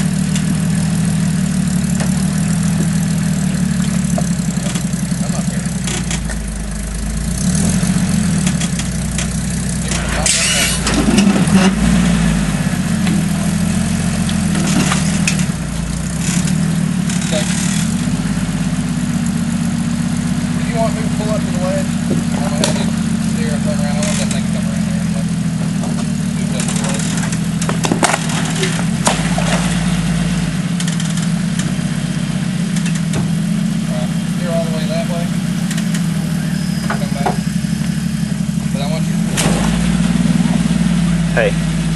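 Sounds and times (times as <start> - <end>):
engine running at low revs: 0.0 - 41.9
sharp clicks: 35.6 - 36.1.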